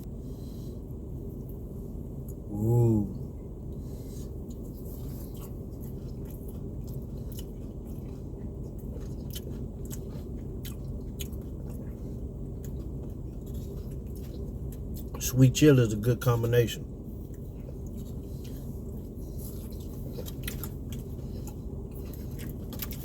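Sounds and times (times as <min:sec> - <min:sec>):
steady low hum: 0:00.0 - 0:23.0
person chewing: 0:03.2 - 0:15.2, 0:17.0 - 0:23.0.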